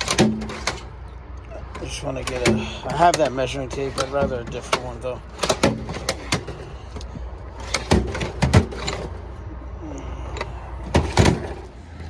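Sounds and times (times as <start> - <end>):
tools knocking and clattering: 0.0 - 0.9, 1.6 - 9.2, 10.4 - 11.7.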